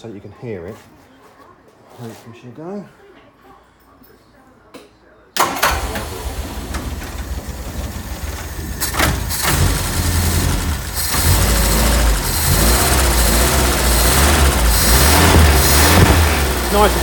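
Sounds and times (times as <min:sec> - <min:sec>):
car engine starting and revving: 0:05.4 - 0:17.0.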